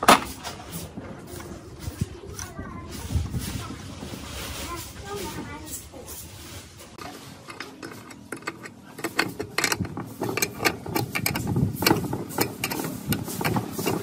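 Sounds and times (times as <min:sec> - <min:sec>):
meat mincer clicking and knocking: 0:07.5 - 0:14.0.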